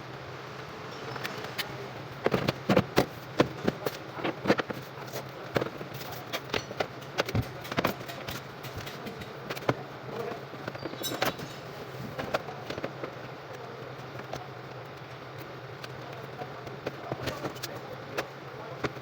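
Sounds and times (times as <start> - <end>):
metal tools clicking and knocking: 5.6 - 9.8, 10.6 - 11.7.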